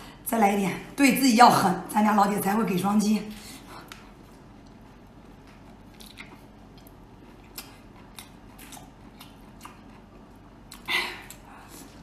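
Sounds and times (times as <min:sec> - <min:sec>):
person chewing: 0:03.8 - 0:12.0.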